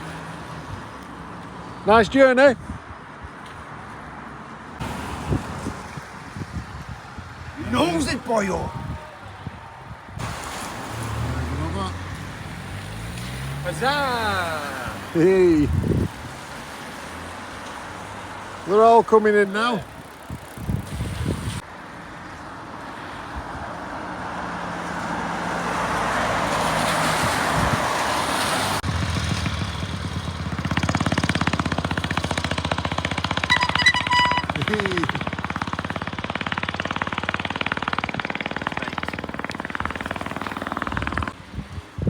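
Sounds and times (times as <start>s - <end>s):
vehicle noisy rush: 0.0s - 42.0s
engine running with rapid pulsing: 28.9s - 41.4s
short high beeps: 33.5s - 34.8s.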